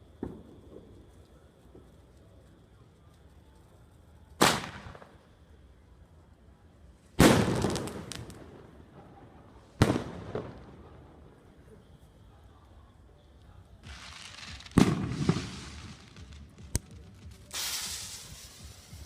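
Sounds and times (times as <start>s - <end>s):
fireworks bangs echoing: 4.4s - 5.2s, 7.2s - 11.0s, 13.8s - 19.0s
crackling pops: 7.2s - 8.5s, 13.8s - 19.0s.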